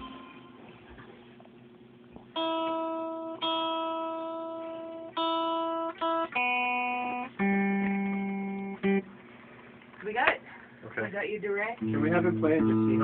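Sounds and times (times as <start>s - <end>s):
sustained instrument notes: 11.8s - 13.0s.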